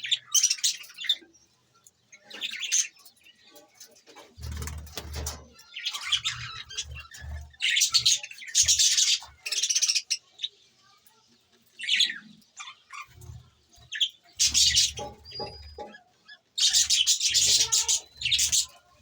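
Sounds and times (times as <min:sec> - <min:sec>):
budgerigars chirping: 0:05.9 - 0:10.3, 0:13.9 - 0:18.9.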